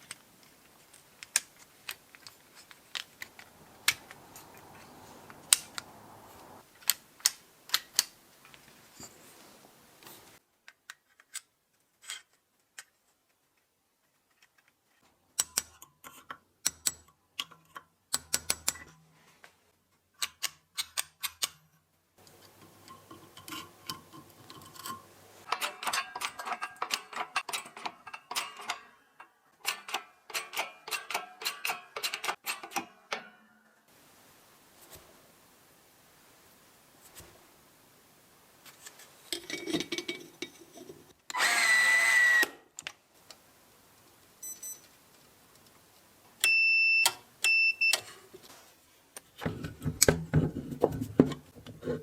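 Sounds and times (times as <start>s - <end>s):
tools and steel clinking: 0.8s - 6.9s, 22.2s - 33.5s, 38.8s - 41.0s.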